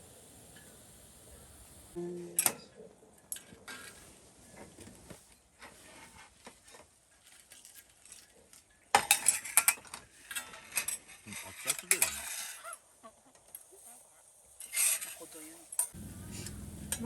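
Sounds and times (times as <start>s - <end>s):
metal utensils clinking on cookware: 9.0s - 12.6s.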